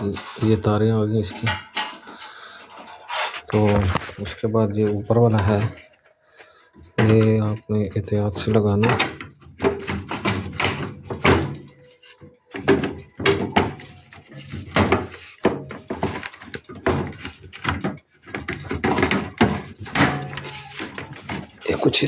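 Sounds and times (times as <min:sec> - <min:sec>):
clicks and knocks of heater parts: 0:01.3 - 0:03.0, 0:06.8 - 0:07.6, 0:08.4 - 0:22.0.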